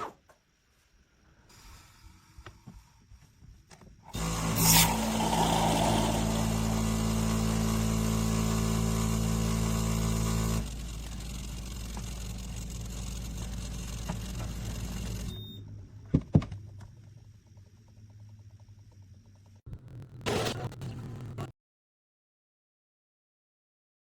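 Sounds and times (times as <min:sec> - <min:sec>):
espresso machine hiss: 0:04.2 - 0:07.2
espresso machine humming: 0:04.2 - 0:15.3.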